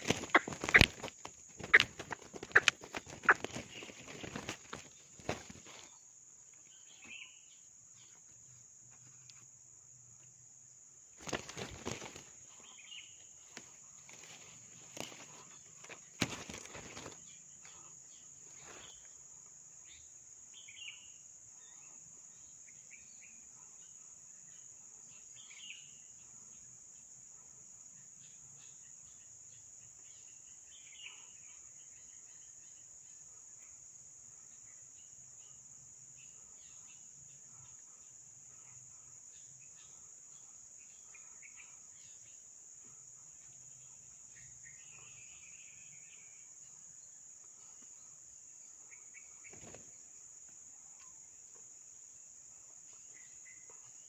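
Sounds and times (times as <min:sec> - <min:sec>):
rustling and knocking in vegetation: 0:00.0 - 0:06.1, 0:11.2 - 0:17.8, 0:18.4 - 0:19.2, 0:49.4 - 0:51.1
insects droning: 0:00.0 - 0:54.0.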